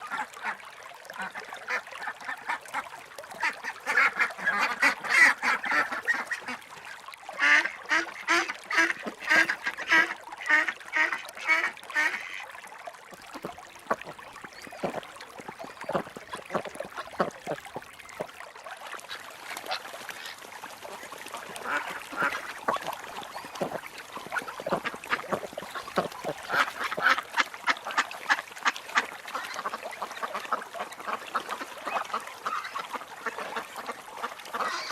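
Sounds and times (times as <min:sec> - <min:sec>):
ducks quacking: 0:13.3 - 0:18.3, 0:21.4 - 0:28.0.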